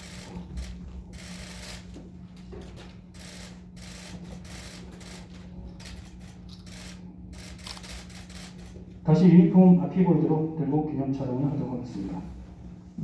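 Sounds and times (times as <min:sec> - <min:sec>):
steady low hum: 0:00.0 - 0:13.0
camera shutters clicking: 0:03.2 - 0:08.8.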